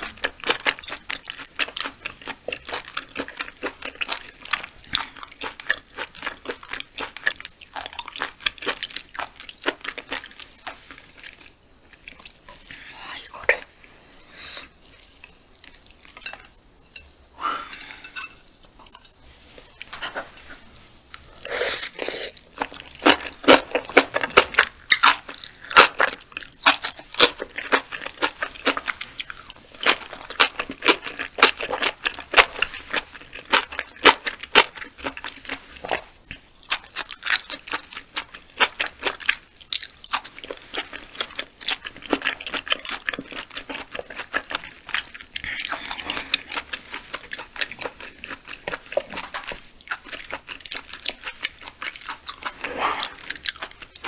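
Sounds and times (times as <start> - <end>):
chewing mouth clicks and smacks: 22.6 - 54.0.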